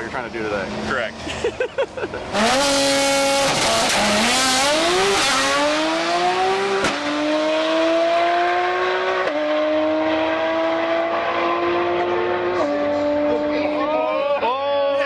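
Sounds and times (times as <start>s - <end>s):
race car engine accelerating: 2.2s - 14.0s.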